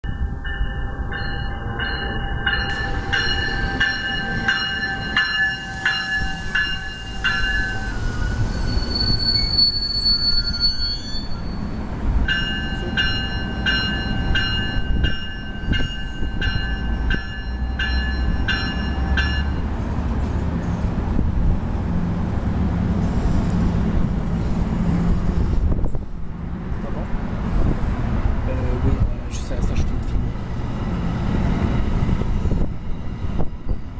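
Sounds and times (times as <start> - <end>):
train rumbling: 0.0 - 33.9
bell ringing: 0.1 - 8.0, 12.3 - 19.7
train wheels squealing: 1.2 - 11.8.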